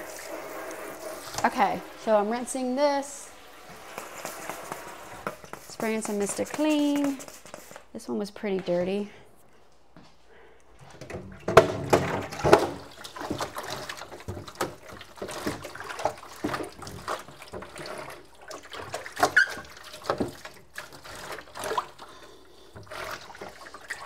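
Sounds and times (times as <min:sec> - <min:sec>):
tap water running: 0:00.0 - 0:07.8, 0:11.0 - 0:24.0
plastic knocking and clattering: 0:10.9 - 0:17.8.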